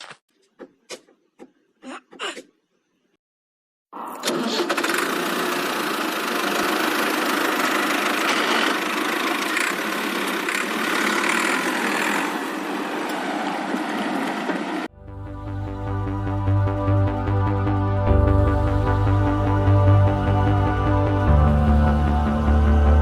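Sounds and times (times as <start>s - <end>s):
motor running: 5.1s - 13.1s.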